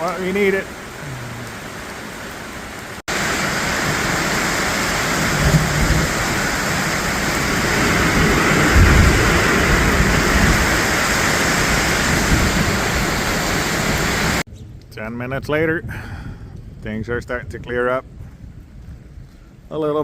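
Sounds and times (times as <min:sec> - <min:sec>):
heavy rain pouring: 0:00.0 - 0:14.4
low rumbles: 0:00.0 - 0:19.7.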